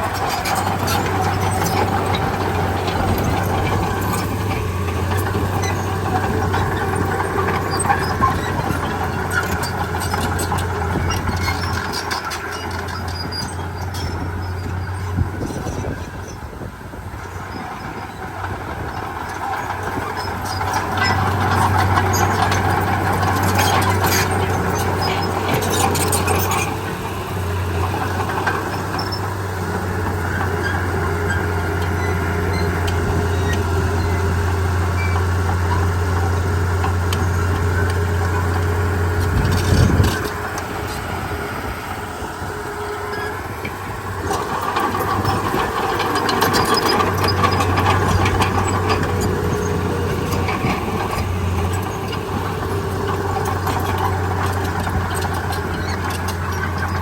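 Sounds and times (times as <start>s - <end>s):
heavy diesel machinery drone: 0.0s - 57.0s.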